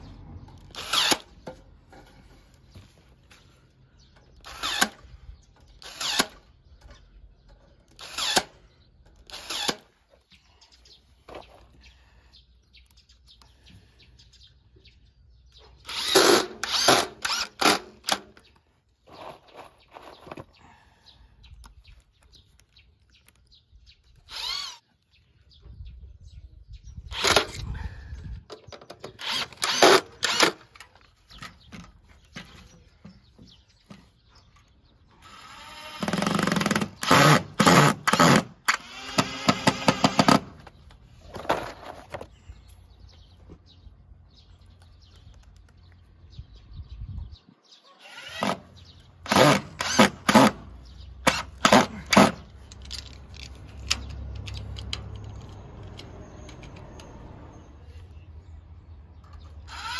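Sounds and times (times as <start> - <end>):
power drill driving screws: 0.6 - 1.3, 4.4 - 5.0, 5.8 - 6.4, 7.9 - 8.6, 9.2 - 9.9, 15.8 - 18.3, 24.3 - 24.8, 27.1 - 27.6, 29.2 - 30.8, 35.2 - 40.6, 48.0 - 52.4, 59.7 - 59.9.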